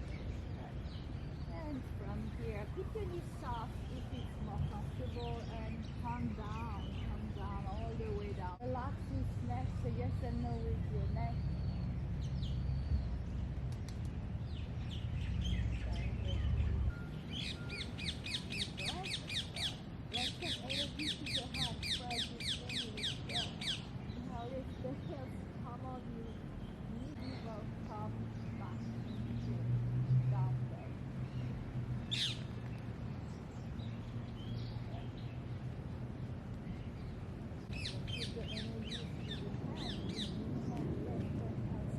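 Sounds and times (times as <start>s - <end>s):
birds chirping: 0.0s - 41.9s
faint bird chirps: 10.2s - 25.6s.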